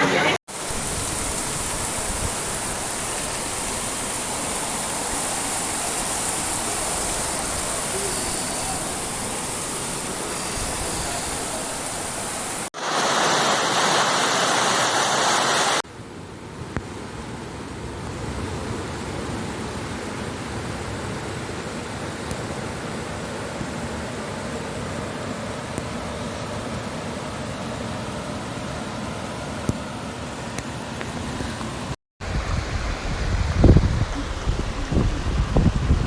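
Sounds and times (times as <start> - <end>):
heavy rain: 0.0 - 15.8
running floodwater: 0.0 - 33.2.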